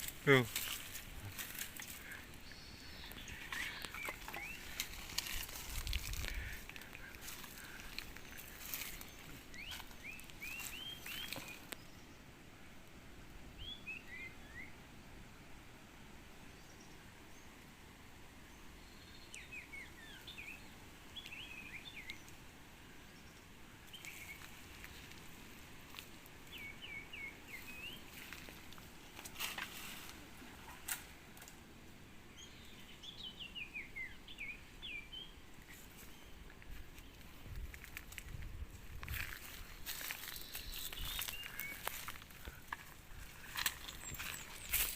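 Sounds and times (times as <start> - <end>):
faint clicks and rustles: 0.0 - 11.8, 35.6 - 44.9
songbird chirping: 0.0 - 44.9.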